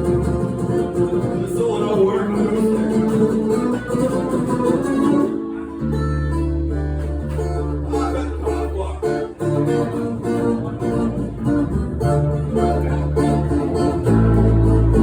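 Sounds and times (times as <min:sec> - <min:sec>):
strummed acoustic guitar: 0:00.0 - 0:15.0
deep bass notes: 0:05.8 - 0:15.0.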